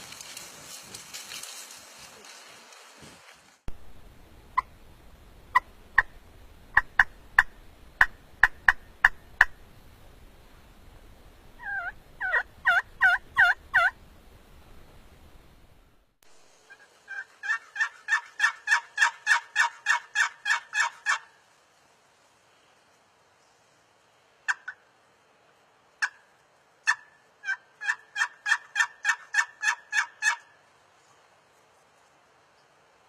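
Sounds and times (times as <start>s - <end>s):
turkey yelping: 11.6s - 14.0s, 16.7s - 21.3s, 24.5s - 24.8s, 26.8s - 30.5s.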